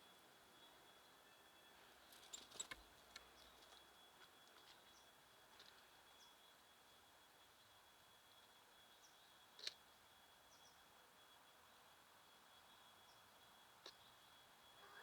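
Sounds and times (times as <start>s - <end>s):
songbirds chirping: 0.0s - 9.7s, 10.3s - 15.0s
faint high-pitched tone: 14.6s - 15.0s.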